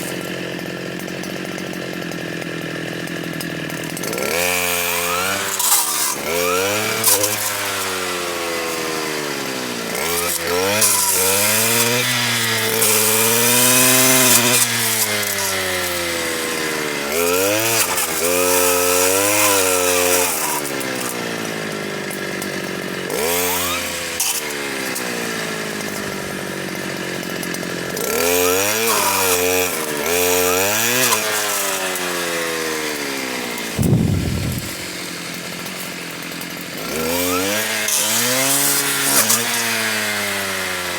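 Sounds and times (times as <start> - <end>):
two-stroke saw revving: 0.0 - 40.9
saw cutting wood: 3.9 - 21.3, 28.0 - 35.1.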